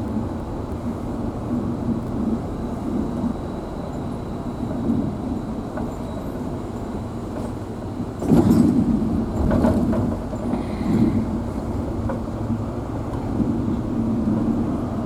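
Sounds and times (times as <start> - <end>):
engine and road rumble: 0.0 - 15.0
vehicle jolt: 8.2 - 14.9.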